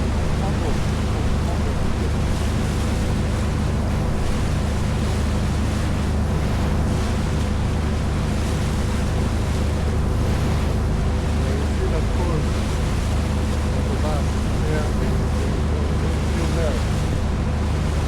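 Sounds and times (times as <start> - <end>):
boat engine running: 0.0 - 18.0
water rushing against hull: 0.0 - 18.0.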